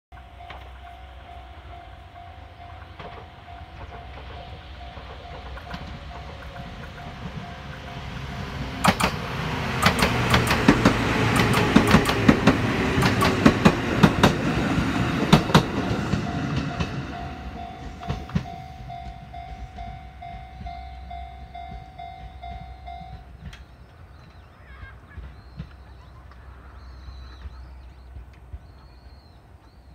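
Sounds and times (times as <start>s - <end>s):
level-crossing warning bell: 0.1s - 23.7s
train wheels clacking over joints: 2.4s - 29.9s.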